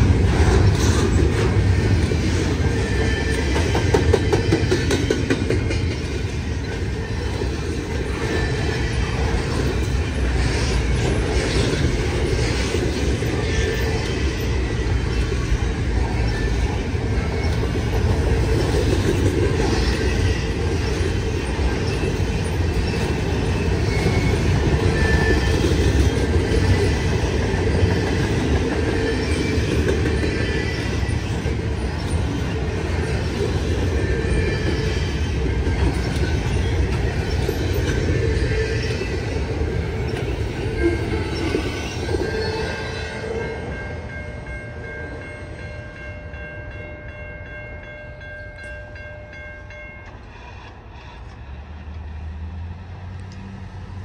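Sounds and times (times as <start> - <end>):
train wheels clattering: 0.0 - 43.4
freight train rumbling past: 0.0 - 54.0.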